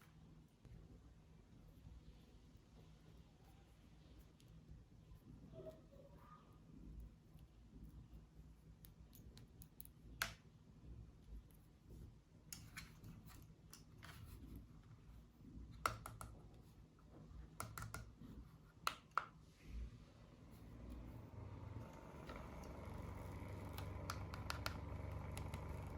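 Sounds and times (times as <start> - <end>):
small objects clicking and tapping: 17.6 - 18.2.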